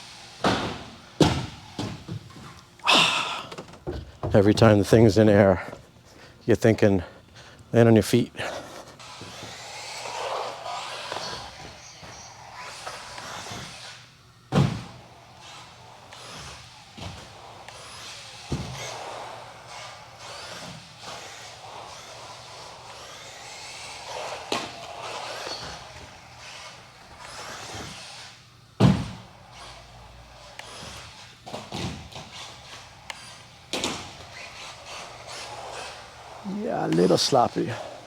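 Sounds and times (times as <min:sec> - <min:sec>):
electric motor whining: 0:34.4 - 0:38.0.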